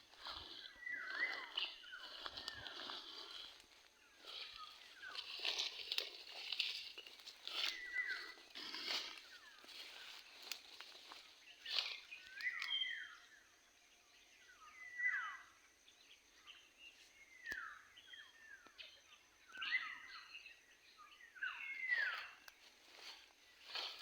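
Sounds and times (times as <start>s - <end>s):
birds downward-sliding calls: 0.0s - 3.6s.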